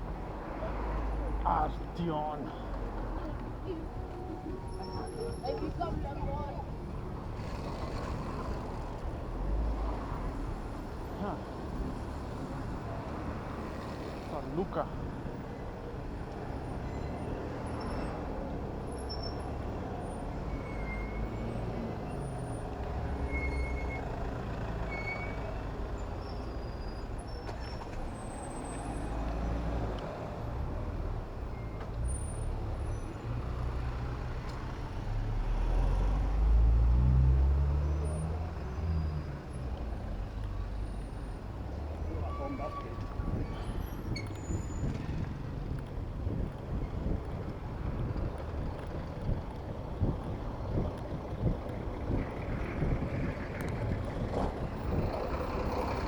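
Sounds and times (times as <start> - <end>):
heavy vehicle passing: 0.0 - 15.4
road traffic rumble: 0.0 - 56.0.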